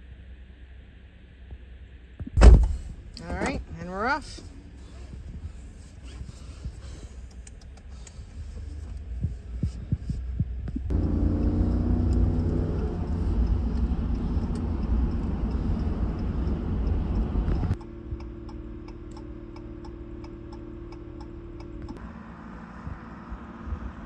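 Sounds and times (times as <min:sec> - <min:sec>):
engine and road rumble: 0:00.0 - 0:24.0
turn signal ticking: 0:06.2 - 0:22.0.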